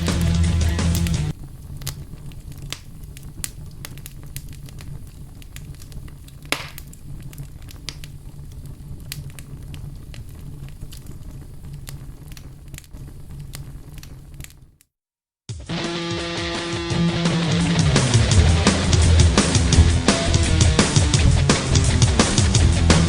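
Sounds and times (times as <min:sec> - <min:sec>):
campfire crackling and popping: 0:00.0 - 0:14.9.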